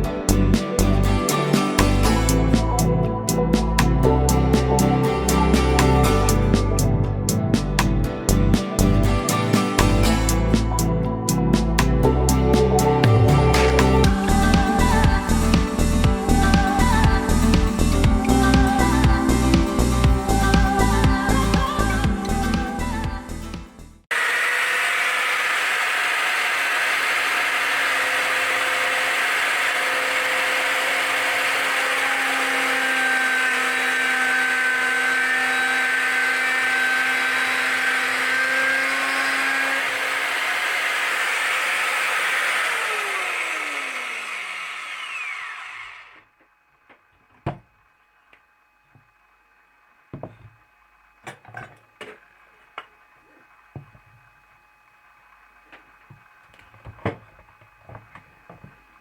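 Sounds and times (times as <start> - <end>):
electric motor whining: 0.0 - 46.4.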